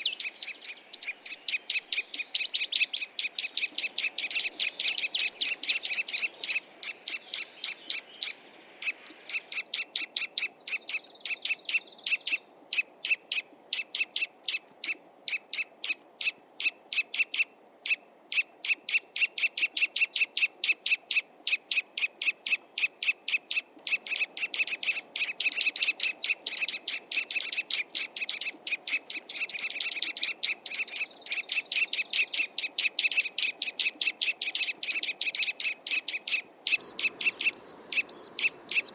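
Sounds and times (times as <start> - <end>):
songbird sharp notes: 35.9 - 38.9
high whistled chirps: 36.8 - 38.9.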